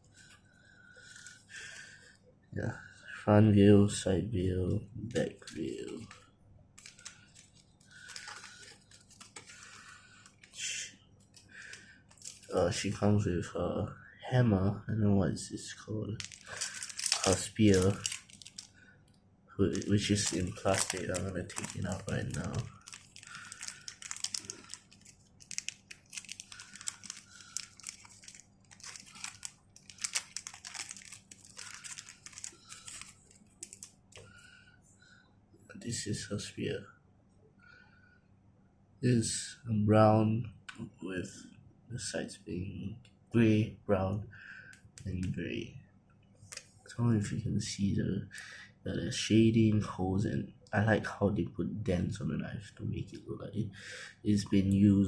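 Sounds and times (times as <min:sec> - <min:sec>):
packaging crinkling: 0:06.8 - 0:10.6, 0:11.3 - 0:12.6, 0:16.2 - 0:18.7, 0:19.6 - 0:34.2
packaging rustle: 0:06.8 - 0:10.6, 0:12.1 - 0:12.6, 0:16.2 - 0:18.7, 0:19.6 - 0:34.2.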